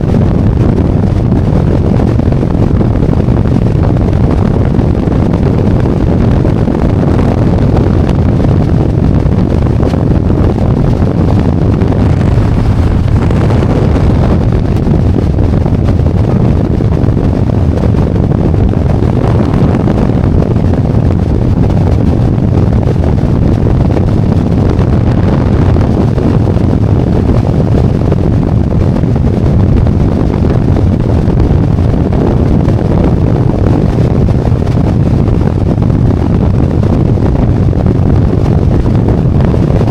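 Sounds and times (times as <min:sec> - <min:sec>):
wind rushing over microphone: 0:00.0 - 0:39.9
motorcycle engine running: 0:10.1 - 0:16.6.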